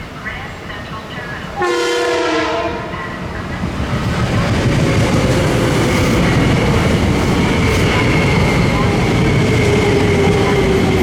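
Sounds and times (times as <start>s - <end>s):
train rumbling past on tracks: 0.0s - 11.0s
train horn blast: 1.6s - 3.2s.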